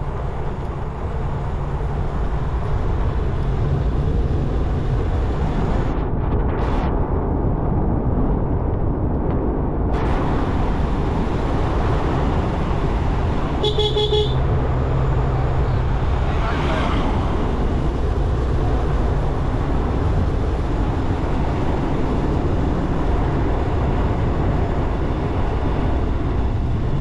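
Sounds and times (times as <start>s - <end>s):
motorcycle road and wind noise: 0.0s - 27.0s
horn beep: 13.6s - 14.4s.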